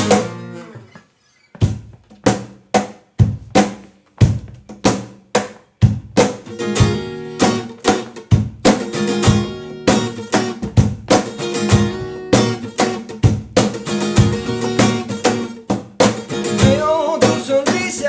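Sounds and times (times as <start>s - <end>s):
acoustic guitar strumming: 0.0s - 2.3s, 5.9s - 18.0s
drum hits: 1.6s - 18.0s.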